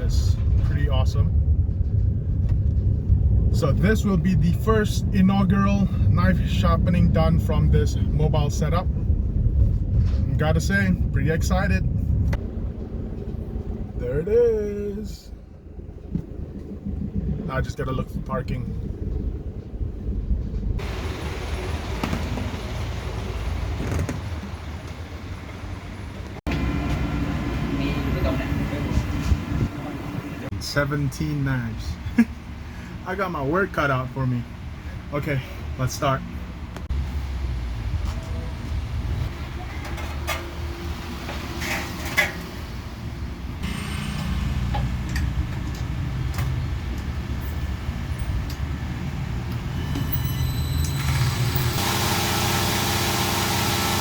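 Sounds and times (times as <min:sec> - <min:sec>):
van engine and road rumble: 0:00.0 - 0:54.0
low machine hum: 0:11.9 - 0:21.7.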